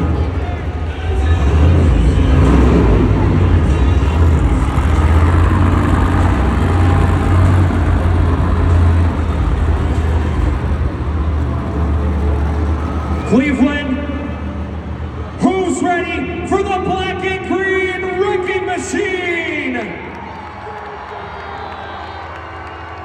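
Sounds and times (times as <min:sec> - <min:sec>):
truck engine rumbling: 0:00.0 - 0:23.0.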